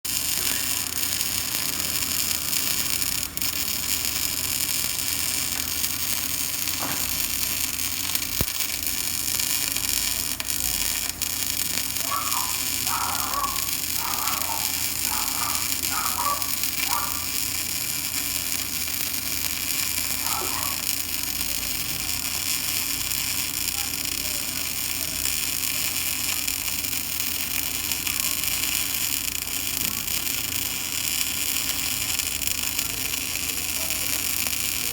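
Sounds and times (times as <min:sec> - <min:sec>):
low electrical hum: 0:00.1 - 0:34.9
faint distant voices: 0:09.6 - 0:17.3, 0:20.2 - 0:29.1, 0:31.1 - 0:34.9.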